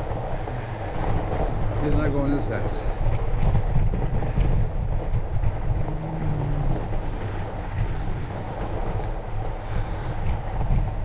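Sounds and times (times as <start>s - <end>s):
bike tyres rumbling on snow: 0.0s - 11.0s
wind buffeting microphone: 0.0s - 11.0s.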